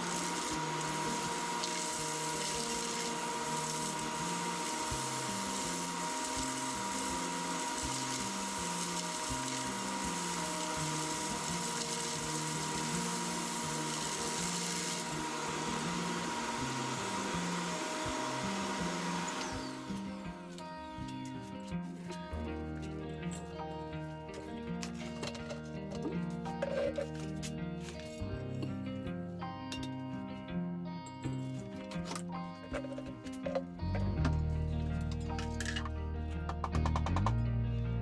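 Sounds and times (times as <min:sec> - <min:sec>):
vacuum cleaner motor whining: 0:00.0 - 0:22.3
background music with bass line: 0:19.6 - 0:38.0.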